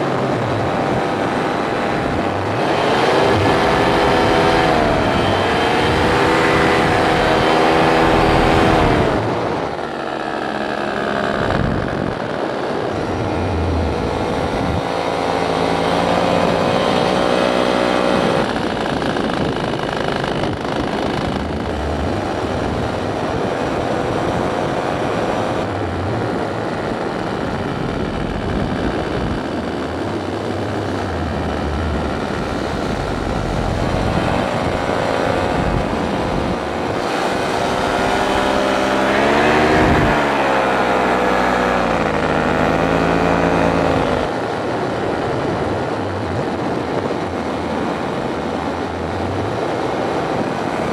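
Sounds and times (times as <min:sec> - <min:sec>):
paramotor engine and propeller: 0:00.0 - 0:50.9.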